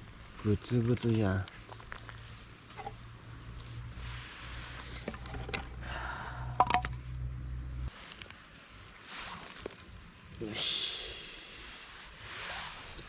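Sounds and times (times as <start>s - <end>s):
food bubbling in a pan: 0.0s - 5.8s
low steady hum: 0.0s - 8.0s.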